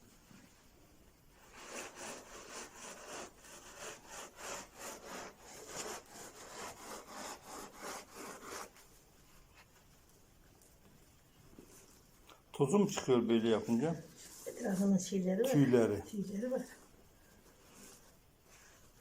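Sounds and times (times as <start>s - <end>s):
pods rubbed in cloth rasping: 1.3s - 9.8s, 13.3s - 19.0s.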